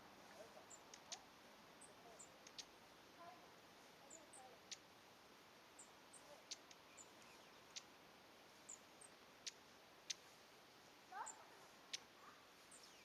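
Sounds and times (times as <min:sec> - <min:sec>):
sharp bird ticks: 0:00.7 - 0:01.3, 0:02.2 - 0:02.8, 0:04.6 - 0:04.9, 0:05.8 - 0:07.9, 0:08.7 - 0:10.2, 0:11.2 - 0:12.1.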